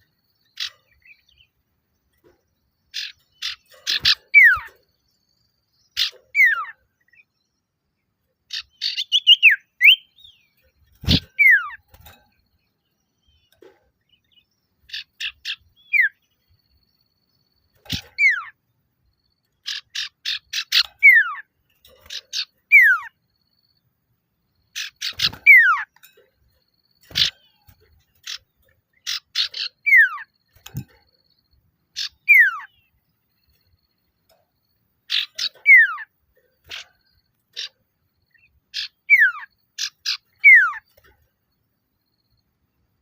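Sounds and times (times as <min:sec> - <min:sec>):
bird chattering and whistling: 0:02.9 - 0:04.8, 0:05.9 - 0:07.3, 0:08.5 - 0:10.4, 0:11.0 - 0:11.9, 0:14.8 - 0:16.3, 0:17.7 - 0:18.6, 0:19.6 - 0:23.2, 0:24.7 - 0:26.2, 0:27.0 - 0:31.0, 0:31.9 - 0:32.9, 0:35.1 - 0:40.9.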